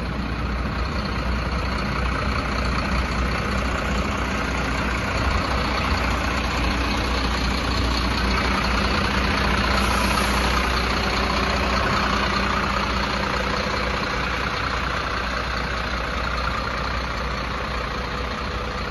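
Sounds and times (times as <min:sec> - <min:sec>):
diesel truck engine idling: 0:00.0 - 0:18.9.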